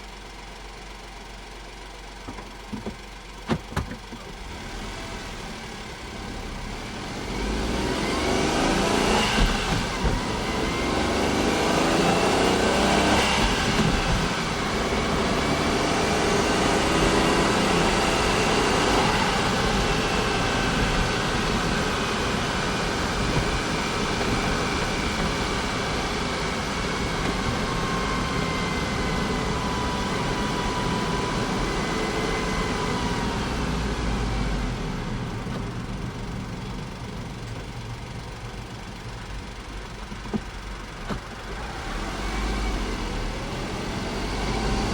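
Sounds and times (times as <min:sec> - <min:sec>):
car engine revving: 0:03.5 - 0:44.9.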